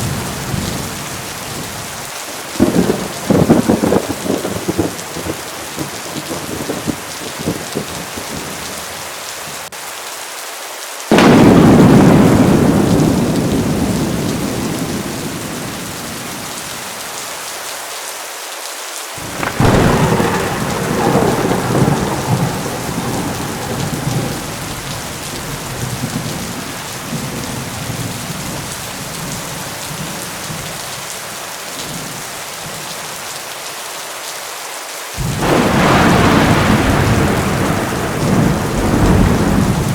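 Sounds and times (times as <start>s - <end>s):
heavy rain: 0.0s - 39.9s
thunder claps: 2.6s - 8.6s, 11.1s - 16.8s, 19.2s - 30.7s, 35.2s - 39.9s.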